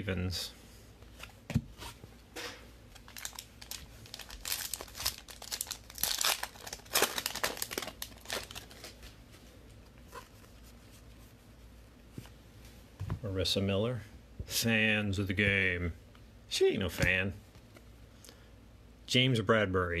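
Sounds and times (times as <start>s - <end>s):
plastic wrapper tearing and crinkling: 2.9s - 9.1s.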